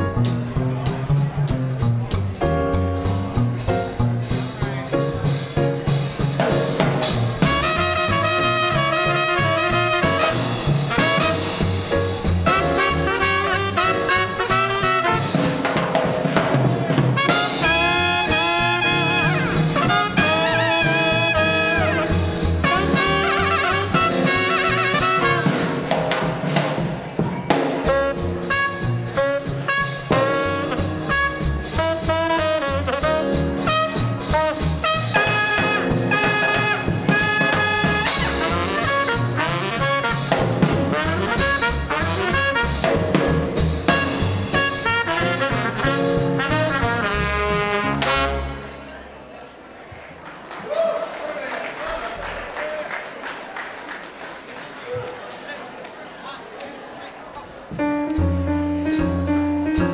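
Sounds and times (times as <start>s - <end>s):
swing band playing: 0.0s - 49.4s, 57.5s - 59.9s
trumpet: 7.0s - 15.8s, 17.0s - 25.9s, 27.8s - 48.9s
saxophone: 12.5s - 15.3s, 17.2s - 25.4s, 27.9s - 42.9s.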